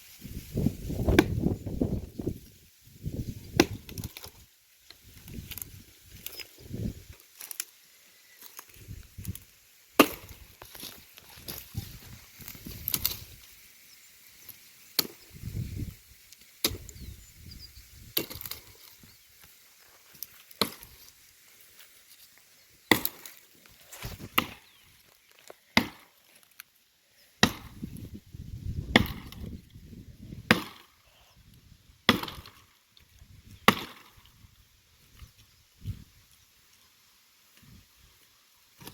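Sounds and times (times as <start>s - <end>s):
branches rustling: 0.0s - 31.0s
bladed tool chopping wood: 1.1s - 1.4s, 3.6s - 4.3s, 10.0s - 10.8s, 16.6s - 16.9s, 18.2s - 18.6s, 20.6s - 21.0s, 22.9s - 23.4s, 24.2s - 24.6s, 25.8s - 26.2s, 27.4s - 27.9s, 28.9s - 29.4s, 30.5s - 30.9s, 32.1s - 32.6s, 33.6s - 34.2s.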